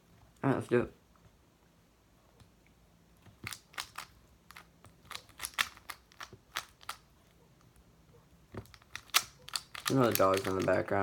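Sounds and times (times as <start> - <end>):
speed cube clicking: 3.4 - 7.0, 8.7 - 10.8.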